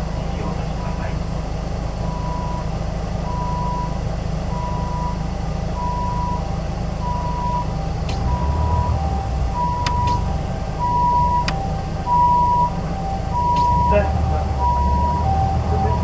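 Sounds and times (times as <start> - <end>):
bus diesel engine and road noise: 0.0 - 16.0
two-tone electronic warning beep: 2.1 - 2.7, 3.3 - 5.2, 5.8 - 16.0.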